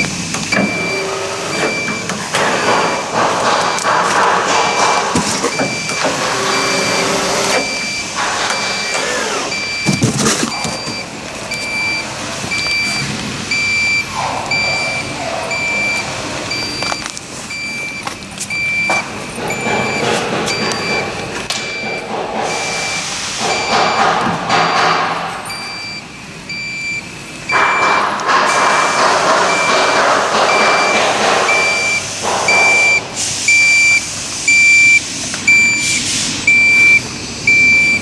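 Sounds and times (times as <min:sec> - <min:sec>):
cnc router cutting acrylic: 0:00.0 - 0:09.7.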